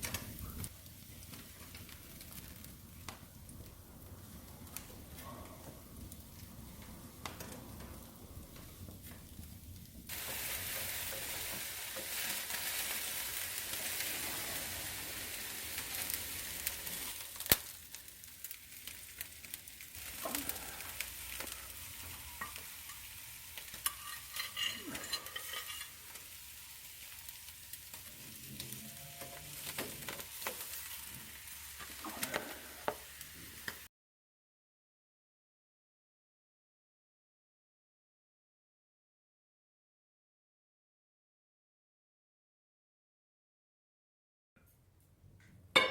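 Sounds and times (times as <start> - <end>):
embers popping and crackling: 0.0 - 33.9
meat sizzling over charcoal: 0.0 - 33.9.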